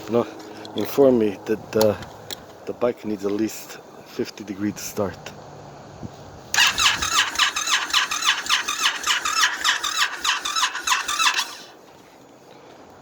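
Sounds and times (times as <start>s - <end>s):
motorcycle engine cranking: 6.5s - 11.8s.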